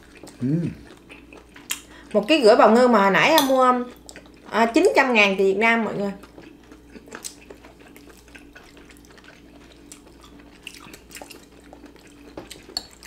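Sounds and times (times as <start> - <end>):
wet chewing and lip smacks: 0.0 - 2.2, 3.4 - 4.5, 6.2 - 13.0
faint steady hum: 0.0 - 13.0.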